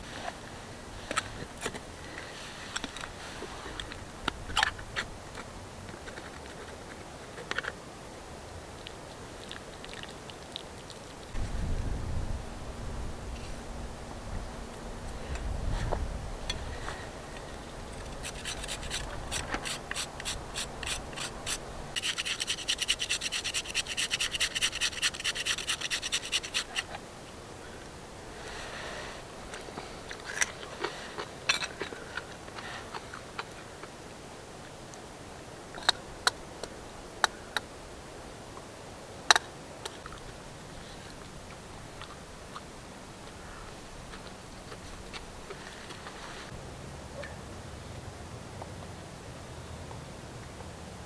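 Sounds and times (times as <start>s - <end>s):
steady low hiss: 0.0s - 51.0s
rhythmic scraping on wood: 17.6s - 27.0s.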